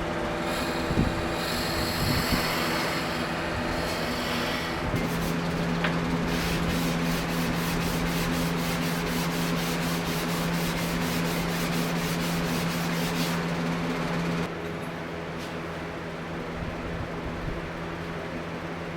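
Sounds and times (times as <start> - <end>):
belt grinder sanding steel: 0.0 - 13.7.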